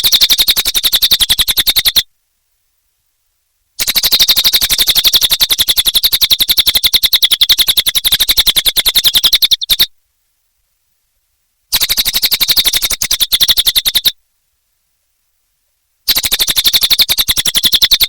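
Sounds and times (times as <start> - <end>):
songbird chattering trill: 0.0 - 2.1, 3.8 - 9.9, 11.7 - 14.2, 16.1 - 18.0.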